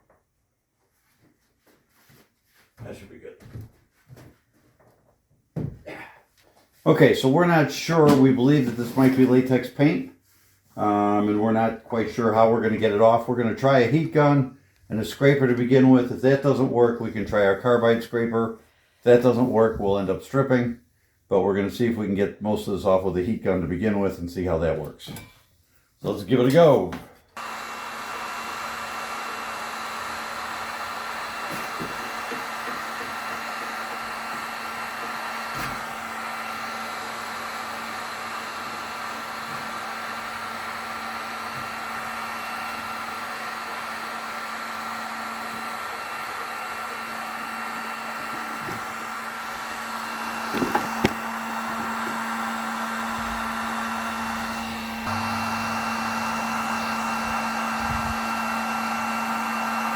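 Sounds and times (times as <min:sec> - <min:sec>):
heat gun fan humming: 0:26.0 - 0:59.9.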